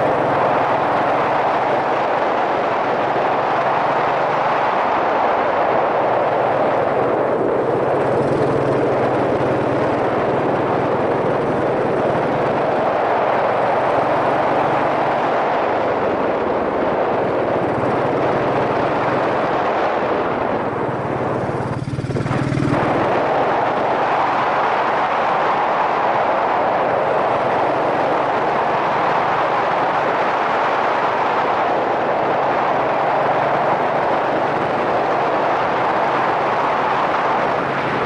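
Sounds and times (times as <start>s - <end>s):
motorcycle engine running: 0.0s - 2.0s, 6.1s - 24.9s, 27.0s - 29.8s, 32.7s - 38.0s
wind rushing over camera: 0.0s - 38.0s.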